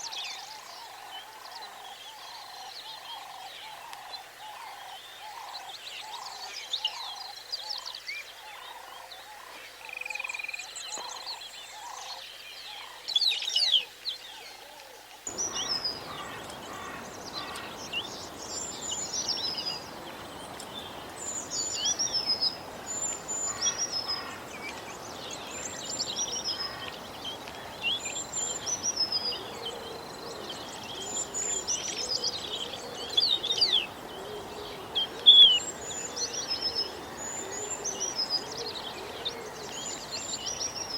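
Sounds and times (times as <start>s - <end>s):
steady background hiss: 12.7s - 40.9s.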